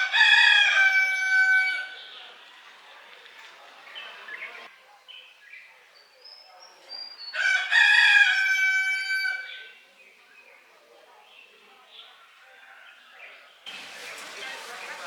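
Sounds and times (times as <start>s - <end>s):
rooster crowing: 0.0s - 2.0s, 7.4s - 9.5s.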